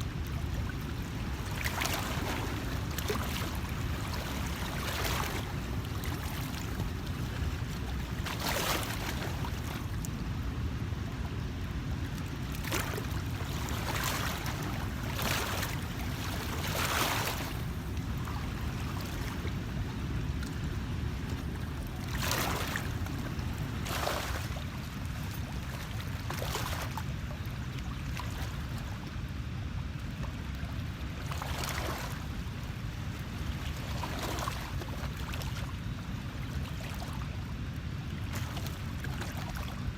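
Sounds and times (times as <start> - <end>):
water splashing: 12.6 - 19.3.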